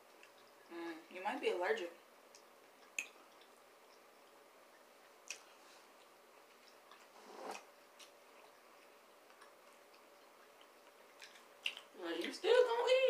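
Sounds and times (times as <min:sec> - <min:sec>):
faint chewing: 0:00.0 - 0:00.8, 0:02.3 - 0:12.7
soft mouth clicks: 0:02.3 - 0:04.0, 0:05.2 - 0:05.5, 0:06.6 - 0:08.2, 0:09.3 - 0:11.9.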